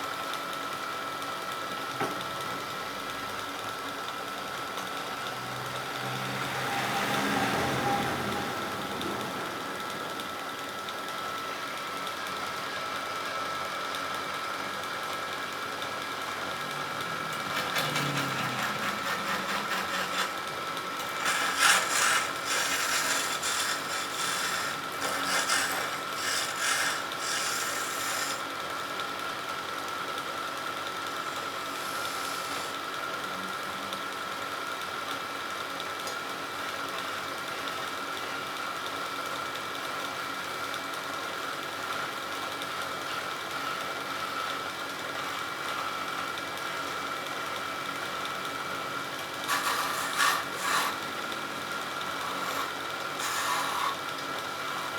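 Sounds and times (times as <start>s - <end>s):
wood lathe motor whine: 0.0s - 54.9s
tool scraping spinning wood: 16.4s - 28.6s, 31.2s - 32.8s, 49.2s - 54.9s.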